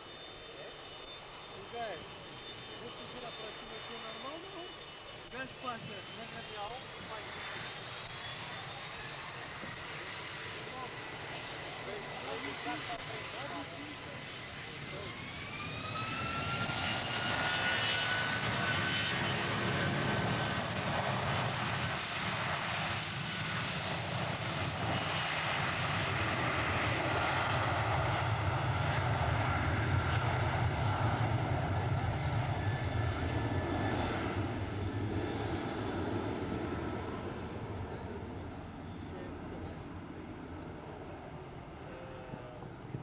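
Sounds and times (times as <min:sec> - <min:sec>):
jet engines spooling up: 0:00.0 - 0:43.0
jet noise with deep rumble: 0:00.0 - 0:43.0.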